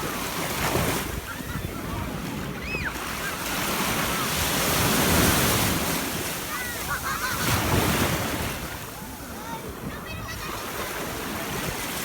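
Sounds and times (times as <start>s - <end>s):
wind buffeting microphone: 0.0s - 2.9s
sea waves breaking on beach: 0.0s - 12.0s.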